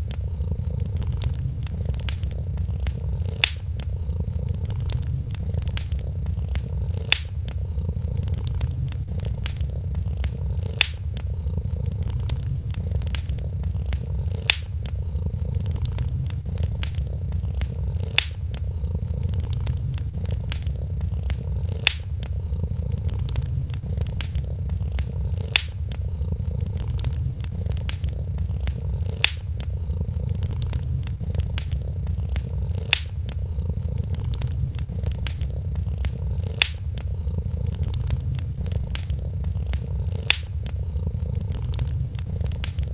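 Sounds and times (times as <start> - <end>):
cat purring: 0.0 - 42.9
fire crackling: 0.0 - 42.9
sharp pop from fire: 10.8 - 11.0, 14.4 - 14.8, 32.9 - 33.2.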